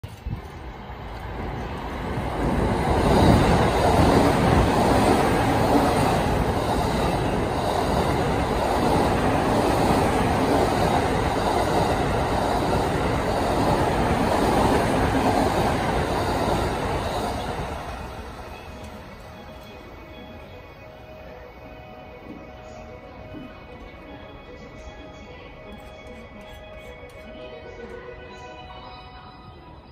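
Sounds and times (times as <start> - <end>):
train wheels rumbling on rails: 0.0 - 20.5.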